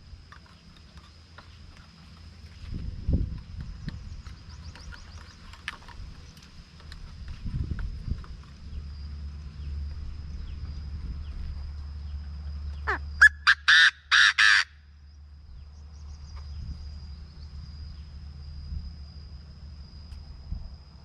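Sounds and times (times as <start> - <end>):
low rumble: 5.9 - 12.8
bird giving harsh call: 12.8 - 14.8.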